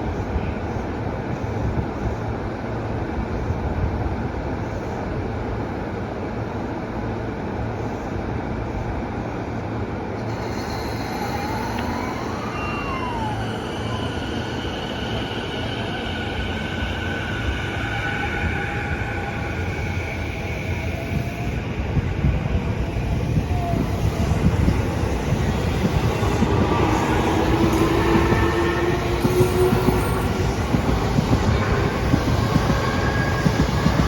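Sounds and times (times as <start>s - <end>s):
train wheels rumbling on rails: 0.0s - 34.0s
wheels and brakes squealing: 10.2s - 21.6s
train motor whine: 10.2s - 34.0s.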